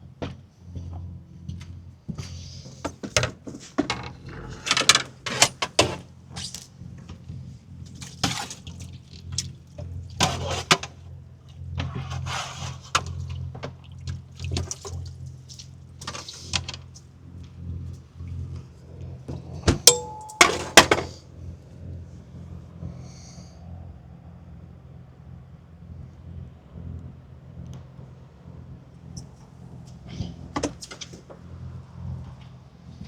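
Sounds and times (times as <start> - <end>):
water splashing and sloshing: 13.6 - 16.3.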